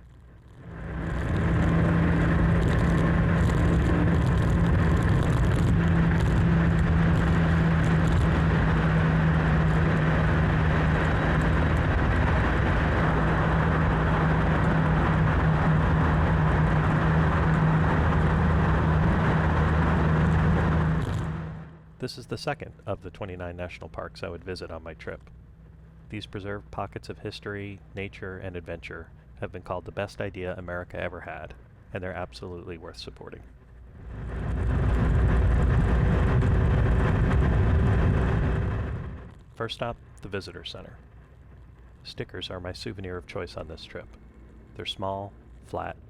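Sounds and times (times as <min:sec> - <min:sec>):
road and wind noise: 0:00.0 - 0:46.0
motorcycle engine cruising: 0:00.3 - 0:21.9, 0:33.8 - 0:40.2.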